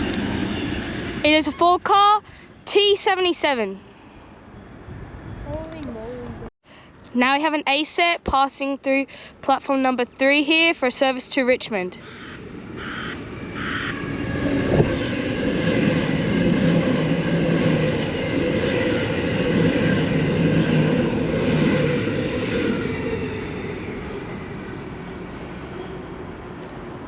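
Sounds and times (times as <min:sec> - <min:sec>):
electric train passing: 0:00.0 - 0:05.4, 0:11.9 - 0:27.0.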